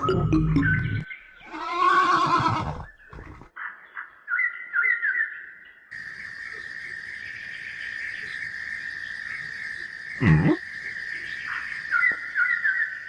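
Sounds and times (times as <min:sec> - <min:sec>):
insect chirring: 0:06.0 - 0:13.0.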